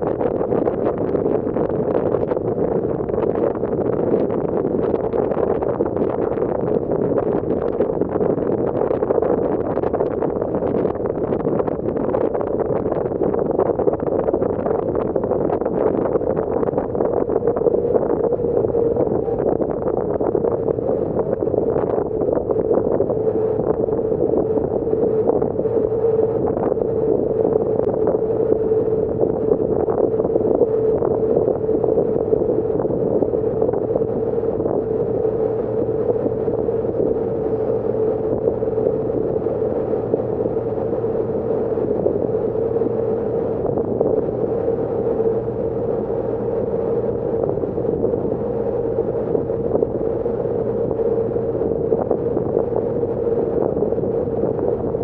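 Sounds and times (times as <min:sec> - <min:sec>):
wind buffeting microphone: 0:00.0 - 0:55.0
ferry engines droning: 0:17.1 - 0:55.0.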